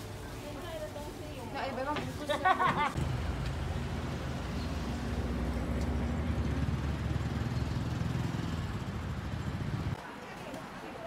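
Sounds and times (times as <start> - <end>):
vehicle engine running: 3.0 - 10.0.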